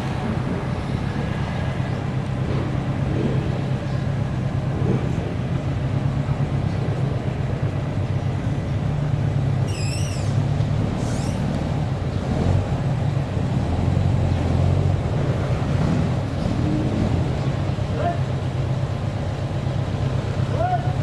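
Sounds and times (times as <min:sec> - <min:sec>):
car engine running: 0:00.0 - 0:21.0
warbling high-pitched call: 0:09.7 - 0:10.4.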